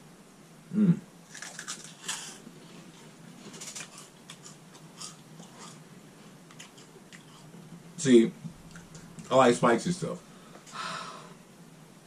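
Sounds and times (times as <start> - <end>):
people crunching snacks: 1.2 - 5.8, 6.5 - 7.5.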